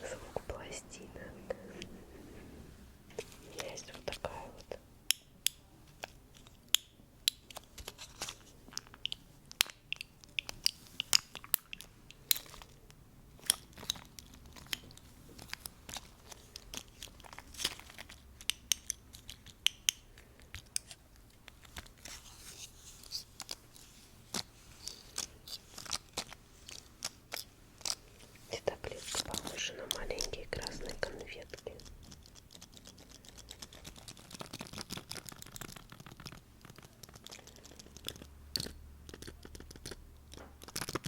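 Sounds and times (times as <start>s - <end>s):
soft rustle: 0.0s - 4.8s, 20.3s - 32.2s
fast taps and clicks: 31.5s - 41.0s.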